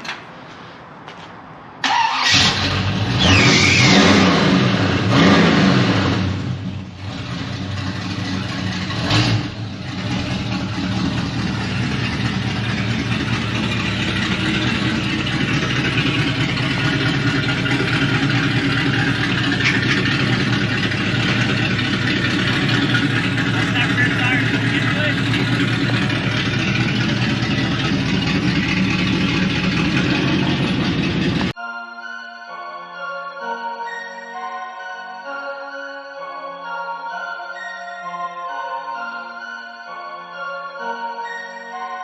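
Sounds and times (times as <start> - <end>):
car engine starting and revving: 1.8 - 31.6.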